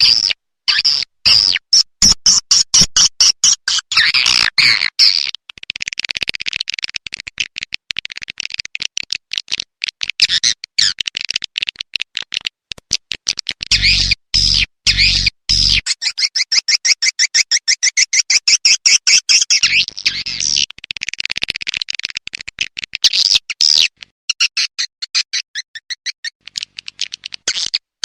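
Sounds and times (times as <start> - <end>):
fast clicking: 5.4 - 13.7, 20.6 - 23.1, 26.4 - 27.8
swiftlet chirping and twittering: 13.7 - 20.6.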